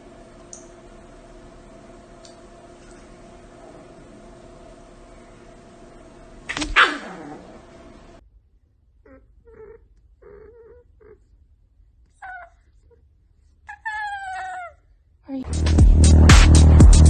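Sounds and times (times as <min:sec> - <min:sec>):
cat yowling: 0:06.6 - 0:07.6, 0:12.2 - 0:12.6.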